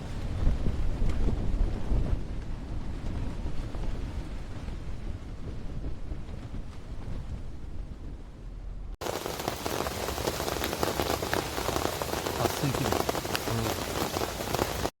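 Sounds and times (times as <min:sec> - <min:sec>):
rain pattering on a surface: 0:00.0 - 0:08.2, 0:09.0 - 0:14.9
low rumble: 0:00.0 - 0:09.0.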